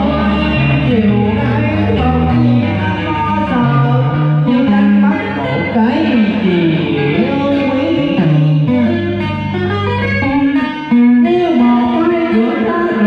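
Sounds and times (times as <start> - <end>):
guitar with sliding bent notes: 0.0 - 13.0.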